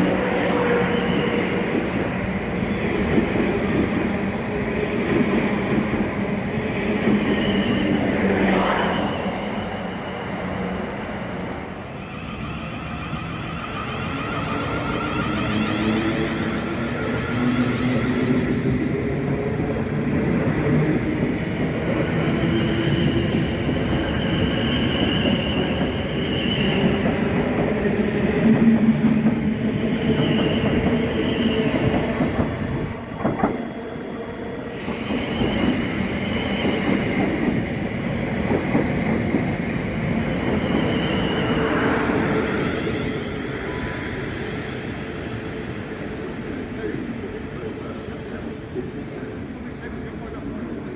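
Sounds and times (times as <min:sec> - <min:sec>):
train wheel squeal: 0:00.0 - 0:02.0, 0:07.1 - 0:10.9, 0:11.9 - 0:18.7, 0:21.9 - 0:33.6, 0:34.7 - 0:37.6, 0:40.0 - 0:45.0
train rumbling: 0:00.0 - 0:50.9.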